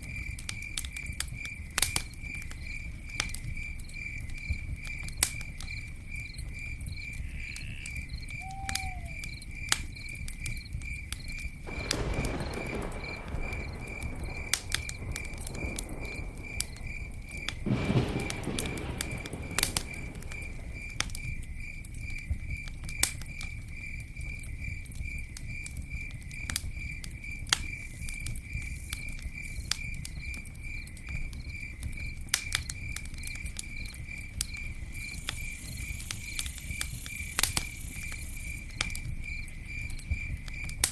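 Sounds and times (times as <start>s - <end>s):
campfire crackling and popping: 0.0s - 40.9s
rushing flame noise: 11.7s - 21.4s.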